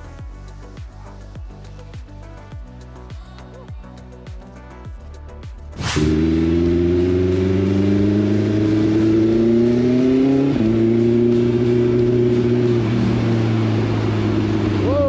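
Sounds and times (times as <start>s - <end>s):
motorcycle engine accelerating: 5.8s - 15.0s.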